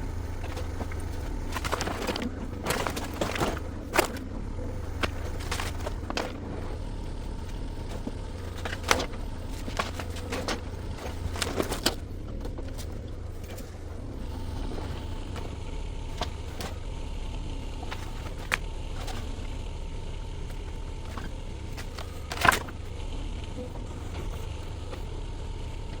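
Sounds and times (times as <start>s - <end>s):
diesel engine running: 0.0s - 26.0s
demolition knocks and cracks: 0.2s - 6.8s, 7.5s - 16.8s.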